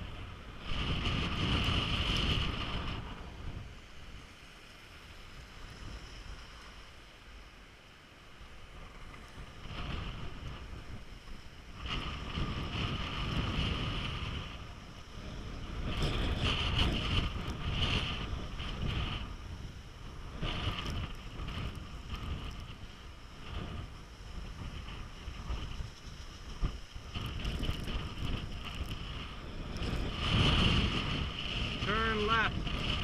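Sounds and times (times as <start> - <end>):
wind buffeting microphone: 0.0 - 4.5, 8.5 - 33.0.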